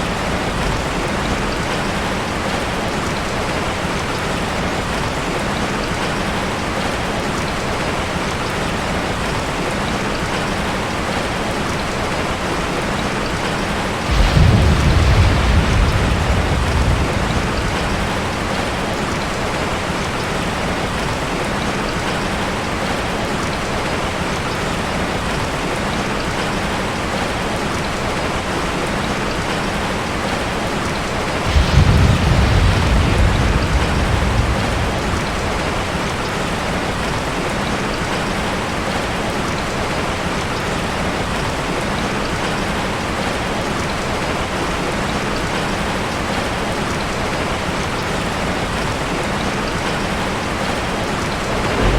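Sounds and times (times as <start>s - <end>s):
heavy rain falling: 0.0s - 51.9s
low rumble of thunder: 13.0s - 21.2s, 31.1s - 38.0s, 49.9s - 51.9s.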